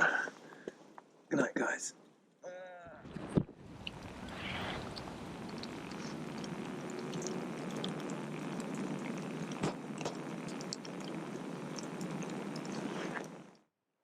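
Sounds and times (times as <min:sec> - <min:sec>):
soft hiss: 0:03.0 - 0:13.6
log fire crackling: 0:03.0 - 0:13.7.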